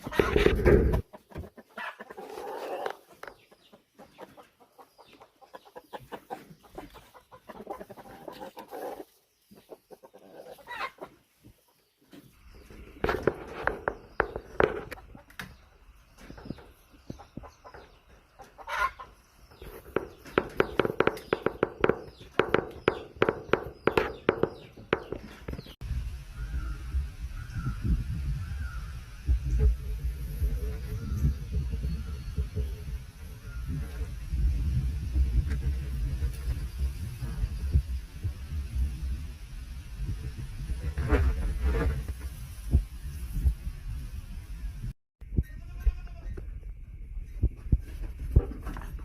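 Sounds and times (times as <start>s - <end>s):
chickens clucking: 0.0s - 25.8s
chicken louder calls: 18.4s - 19.2s.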